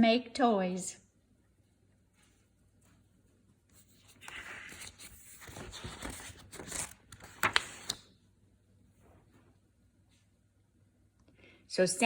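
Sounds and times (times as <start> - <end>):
paper page rustling and turning: 3.7 - 8.1.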